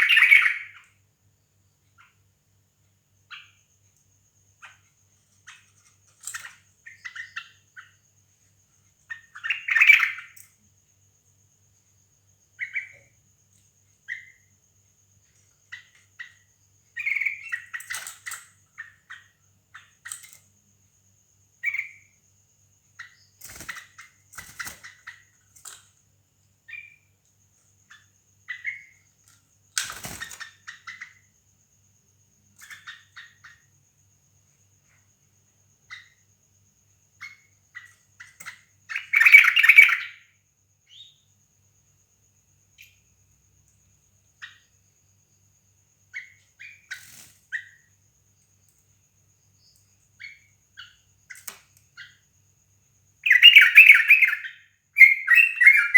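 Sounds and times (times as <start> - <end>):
bulbuls chirping: 0.0 - 1.0, 4.4 - 10.5, 12.5 - 20.4, 26.6 - 27.2, 27.8 - 31.5, 32.4 - 33.8, 37.0 - 40.3, 53.2 - 55.9.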